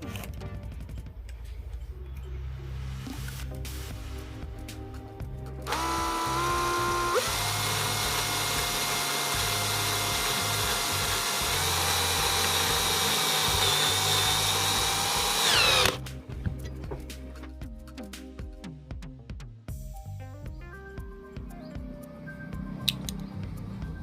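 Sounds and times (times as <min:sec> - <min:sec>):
power tool motor whine: 0:05.7 - 0:16.0.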